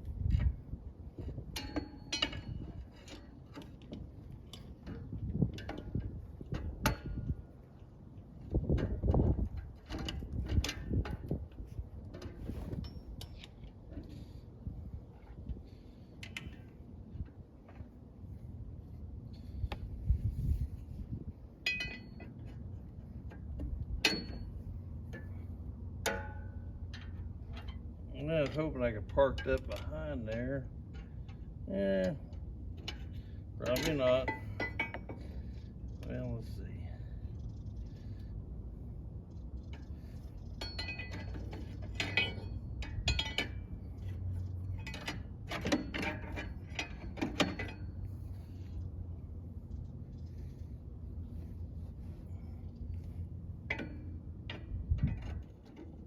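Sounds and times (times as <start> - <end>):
steady low hum: 0.0 - 56.0
metal tools tapping metal: 1.5 - 7.3, 21.6 - 22.6, 23.3 - 25.4, 26.0 - 36.6, 39.7 - 48.4, 53.0 - 55.9.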